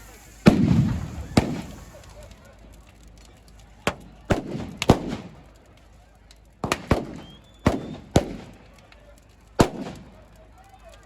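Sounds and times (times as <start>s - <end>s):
sharp firework bangs with echo: 0.0s - 2.4s, 3.9s - 5.3s, 6.6s - 8.5s, 9.6s - 10.0s.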